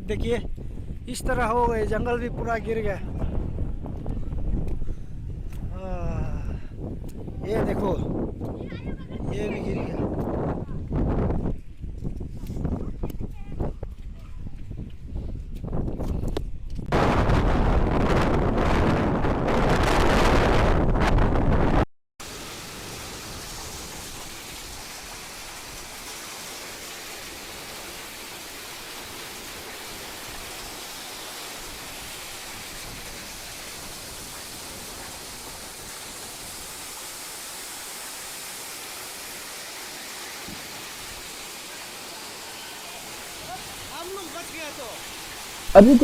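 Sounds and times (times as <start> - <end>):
wind buffeting microphone: 0.0 - 21.8
rain hiss: 22.2 - 46.0.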